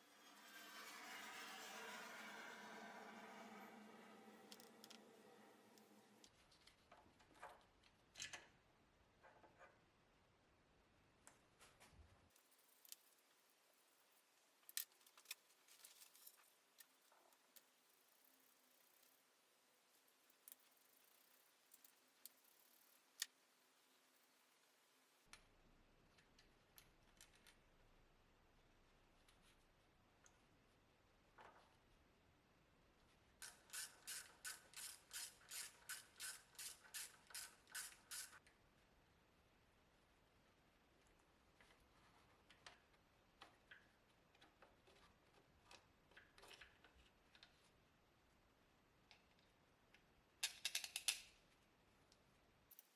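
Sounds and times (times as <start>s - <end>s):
rasping scrubbing strokes: 0.0s - 6.2s
faint clicks and taps: 41.0s - 47.8s.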